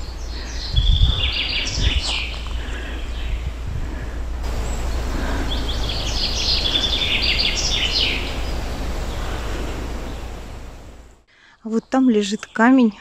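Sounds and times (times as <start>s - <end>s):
songbird singing high chirps: 0.0s - 3.6s, 4.5s - 10.5s
steady low rumble: 0.0s - 11.3s.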